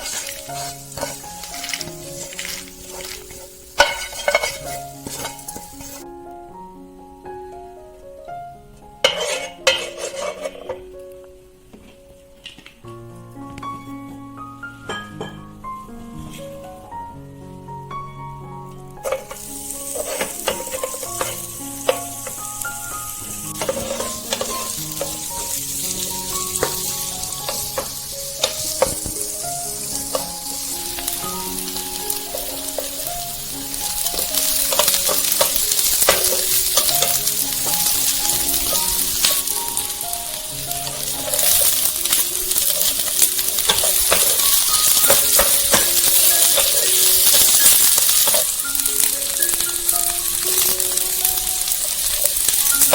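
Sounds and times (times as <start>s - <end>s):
spoon stirring and scraping: 0.0s - 6.0s, 9.1s - 10.8s, 19.0s - 22.5s, 23.4s - 40.0s, 40.6s - 49.6s
food sizzling in a pan: 0.0s - 6.1s, 9.0s - 11.0s, 18.9s - 52.9s
soft background music: 0.0s - 52.9s.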